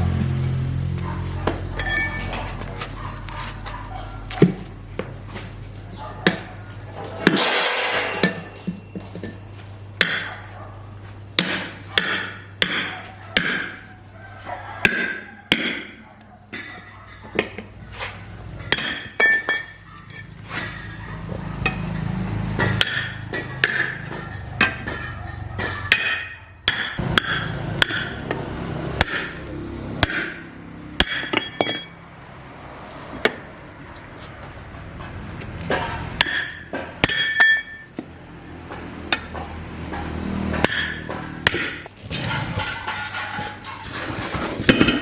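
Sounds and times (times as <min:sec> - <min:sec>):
hammer hitting metal: 0:07.2 - 0:08.6, 0:11.4 - 0:13.8, 0:18.7 - 0:20.9, 0:22.6 - 0:28.4, 0:29.0 - 0:32.0, 0:35.7 - 0:38.0, 0:38.7 - 0:41.9.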